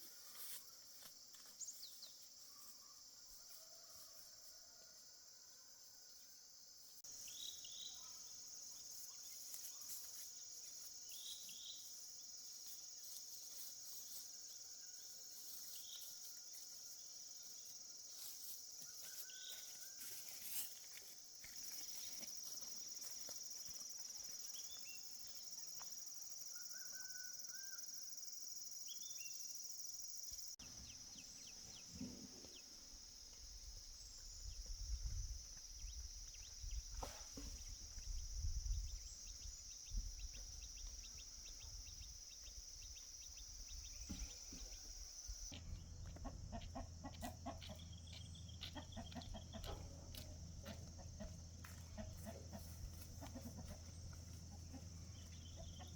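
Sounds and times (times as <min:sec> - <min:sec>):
high insect drone: 0:06.1 - 0:51.8
chickens clucking: 0:45.5 - 0:55.9.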